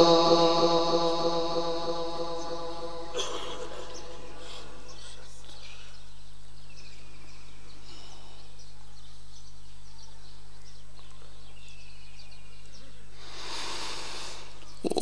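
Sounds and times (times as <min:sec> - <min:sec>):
electrical hum from sound system: 0:00.0 - 0:05.2
person reciting: 0:00.0 - 0:06.0, 0:14.8 - 0:15.0
faint bird chirps: 0:01.2 - 0:15.0
breath at microphone: 0:07.8 - 0:08.6, 0:13.2 - 0:14.8.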